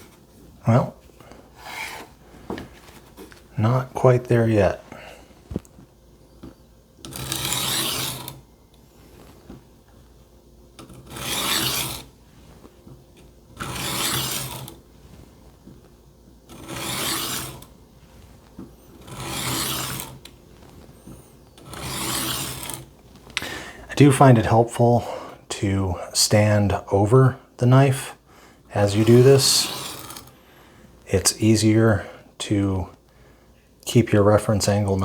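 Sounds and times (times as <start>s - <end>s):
knife rasping on sharpening plate: 16.7s - 17.6s.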